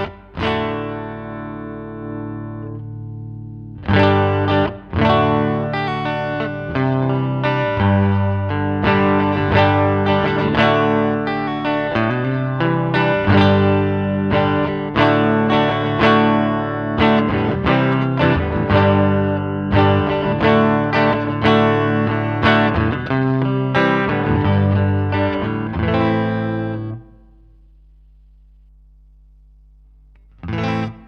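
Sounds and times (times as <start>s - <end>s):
electric guitar chords and notes: 0.0s - 27.7s, 30.1s - 31.0s
faint low hum: 27.0s - 31.0s.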